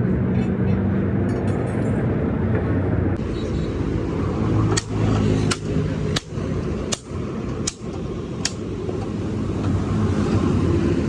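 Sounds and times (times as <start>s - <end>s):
low traffic and engine rumble: 0.0s - 11.0s
hammer blows on metal: 4.7s - 8.7s.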